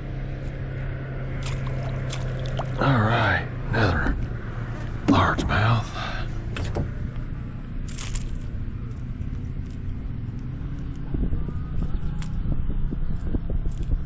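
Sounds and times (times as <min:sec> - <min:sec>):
wind on microphone: 0:10.6 - 0:14.0.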